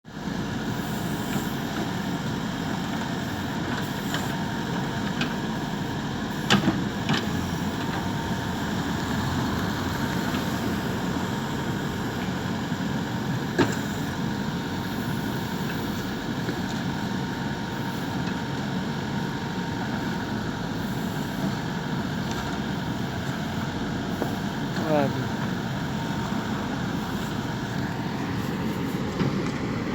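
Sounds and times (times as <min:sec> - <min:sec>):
machinery engine running: 0:01.8 - 0:17.4.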